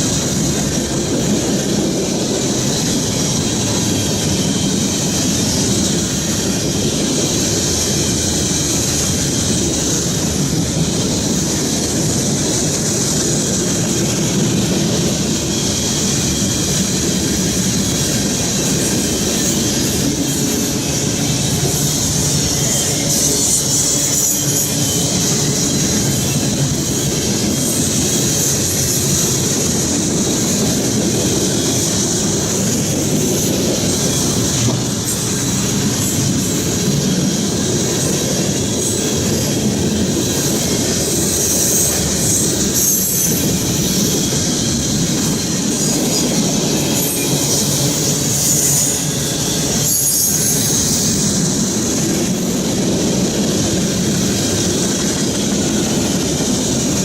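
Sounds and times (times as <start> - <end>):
train wheels rumbling on rails: 0.0 - 57.0
high-pitched wheel squeal: 17.7 - 30.0, 30.6 - 52.7.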